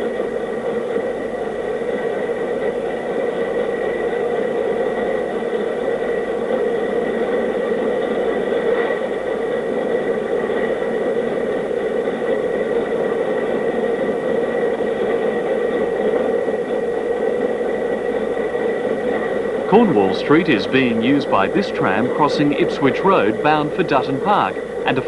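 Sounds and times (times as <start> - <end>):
thin high whine: 7.2 - 25.0.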